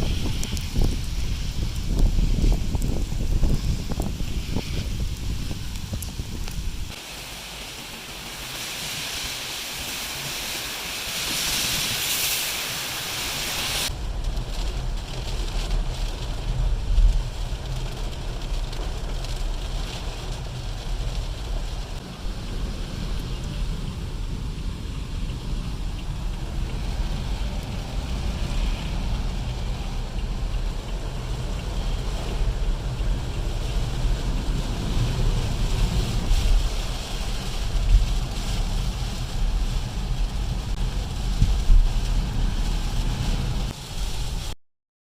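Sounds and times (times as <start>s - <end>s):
wind buffeting microphone: 0.0s - 7.0s, 21.8s - 44.4s.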